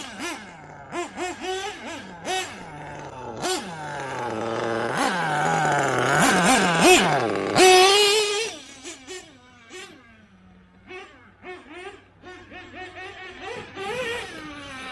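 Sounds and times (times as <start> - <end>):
small nitro engine revving: 0.0 - 14.9.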